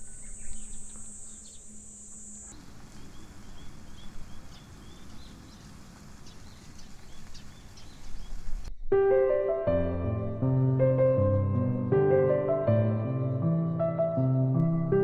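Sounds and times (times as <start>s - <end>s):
high insect drone: 0.0s - 6.4s
birds chirping: 0.0s - 8.9s.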